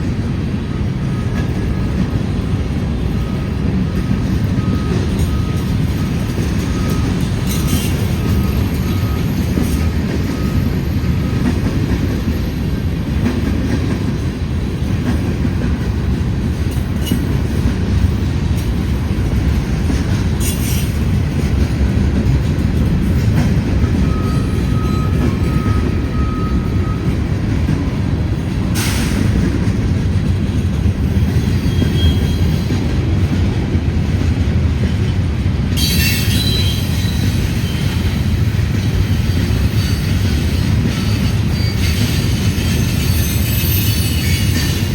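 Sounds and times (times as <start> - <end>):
train wheels rumbling on rails: 0.0 - 44.9
high wheel squeals: 4.6 - 11.4, 24.0 - 27.2, 31.6 - 32.7, 35.8 - 38.1, 39.2 - 44.9.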